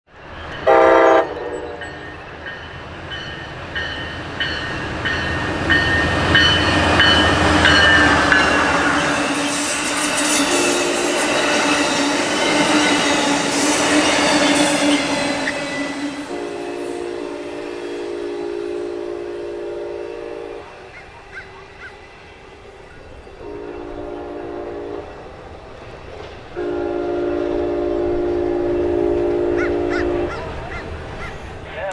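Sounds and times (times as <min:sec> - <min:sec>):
locomotive rumbling: 0:00.1 - 0:31.9
train horn blast: 0:00.6 - 0:02.0, 0:05.9 - 0:20.9, 0:23.4 - 0:25.3, 0:26.5 - 0:31.5
high wheel squeals: 0:01.3 - 0:23.9.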